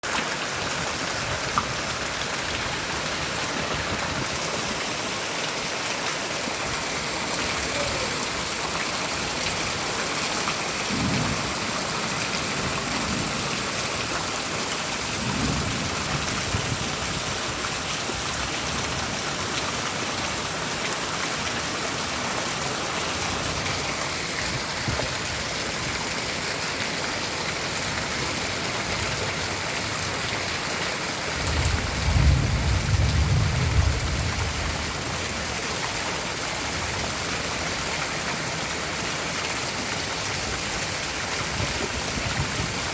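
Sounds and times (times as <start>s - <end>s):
steady rain falling: 0.0s - 42.9s
low rumbles of thunder: 10.8s - 13.6s, 15.0s - 17.4s, 31.3s - 35.4s.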